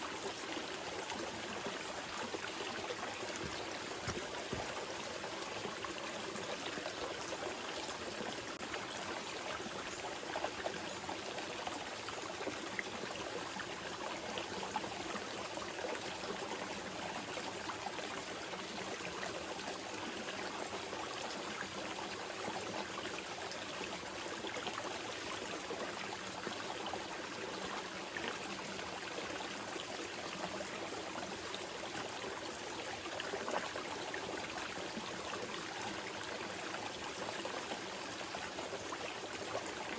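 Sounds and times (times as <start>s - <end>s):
river flowing over stones: 0.0s - 14.2s.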